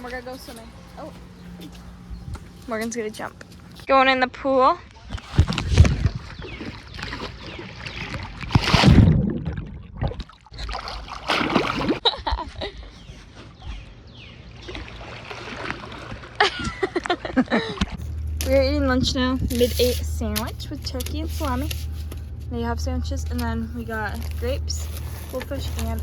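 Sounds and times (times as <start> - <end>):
pool water splashing: 4.6 - 12.4, 13.3 - 26.0.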